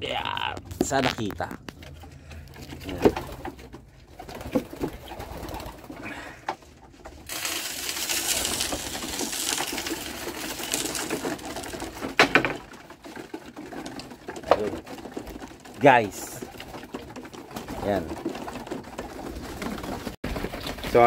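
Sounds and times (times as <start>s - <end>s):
pigeons cooing: 2.0s - 6.8s.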